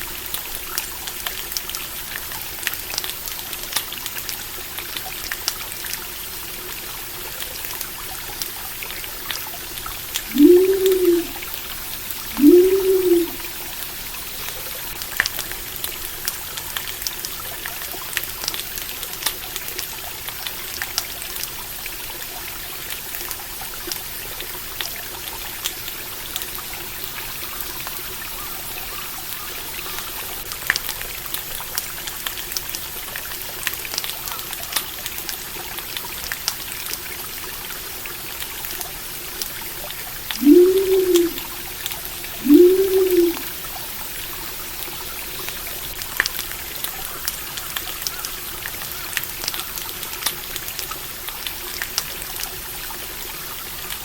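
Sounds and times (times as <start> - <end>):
stream water trickling: 0.0 - 54.0
short rising and falling call: 10.3 - 11.4, 12.3 - 13.5, 40.4 - 41.5, 42.4 - 43.5.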